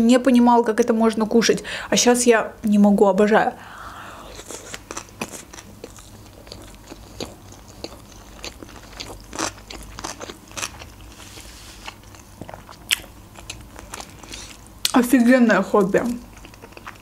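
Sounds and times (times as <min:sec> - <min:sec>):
chewing with wet mouth clicks: 0:04.7 - 0:11.0, 0:11.9 - 0:14.2, 0:16.2 - 0:17.0.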